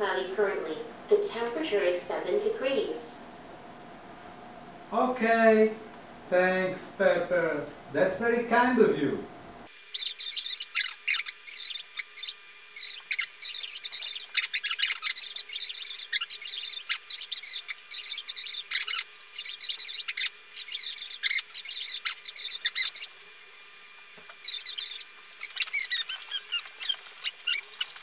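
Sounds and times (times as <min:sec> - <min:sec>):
small birds chirping rapidly: 0:09.8 - 0:23.1, 0:24.3 - 0:28.0.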